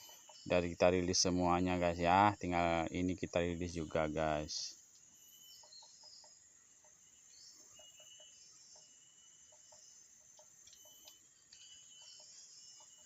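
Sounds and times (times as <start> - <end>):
faint high bird chirps: 0.0 - 13.0
small ticks: 4.9 - 5.8, 9.5 - 13.0.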